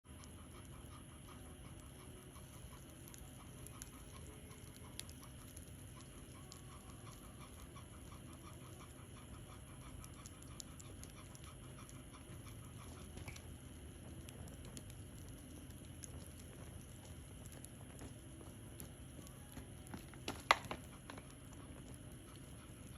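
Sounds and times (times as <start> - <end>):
dog panting: 0.1 - 22.9
low steady rumble: 0.1 - 22.9
bonfire crackling and popping: 1.8 - 8.8, 9.9 - 22.9.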